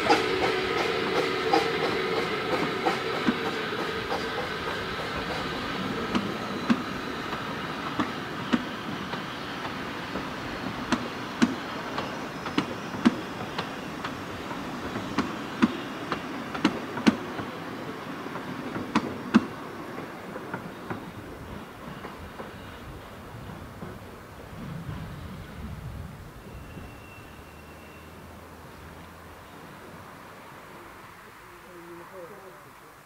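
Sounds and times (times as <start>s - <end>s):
train wheels clicking over rail joints: 0.0s - 25.2s
train rumble: 0.0s - 33.0s.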